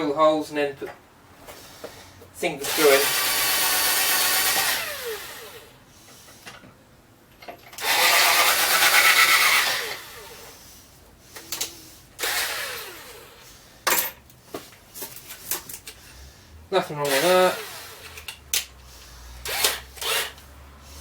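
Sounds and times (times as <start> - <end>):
power drill boring into wood: 2.6 - 5.7, 7.8 - 10.5, 12.2 - 13.4, 17.0 - 18.3, 19.4 - 20.4.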